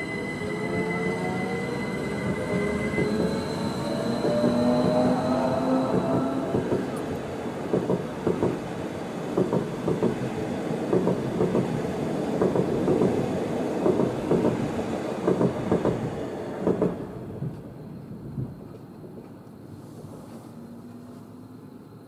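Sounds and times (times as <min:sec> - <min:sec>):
train rumble: 0:00.0 - 0:22.0
train wheels clattering: 0:02.2 - 0:08.7, 0:09.3 - 0:17.7.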